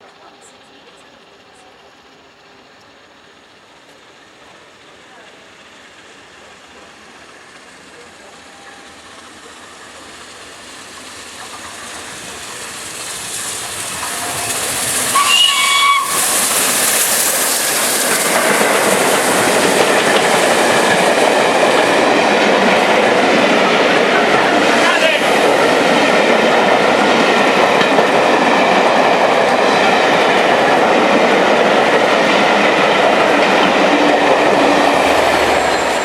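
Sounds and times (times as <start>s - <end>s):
steam train passing: 0.0s - 36.0s
short whistle: 15.1s - 16.4s.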